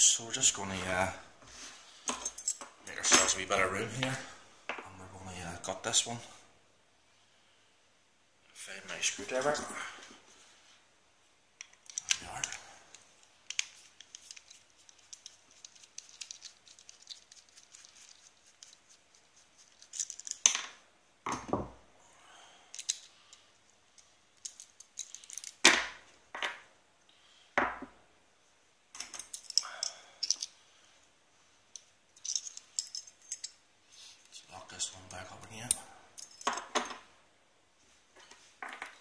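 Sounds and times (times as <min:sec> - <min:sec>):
metallic clicks and scrapes: 0:11.6 - 0:18.9.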